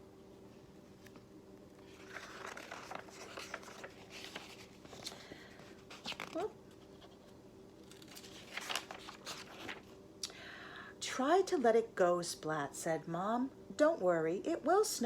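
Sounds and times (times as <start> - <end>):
faint steady hum: 0.0 - 15.0
book pages turning: 0.9 - 10.0.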